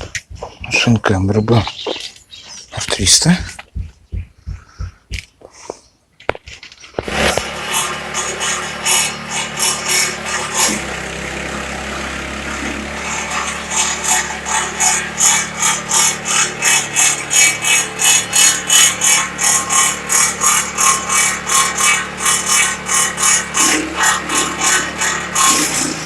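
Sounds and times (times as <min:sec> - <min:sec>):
branches chopping crackles: 0:06.2 - 0:07.6
branch chipper engine hum: 0:06.8 - 0:26.0.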